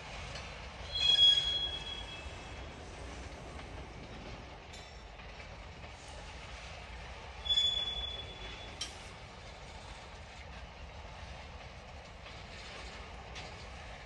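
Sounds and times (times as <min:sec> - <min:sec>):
freight cars rumbling on rails: 0:00.0 - 0:14.0
high wheel squeal: 0:00.8 - 0:02.6, 0:07.4 - 0:08.8.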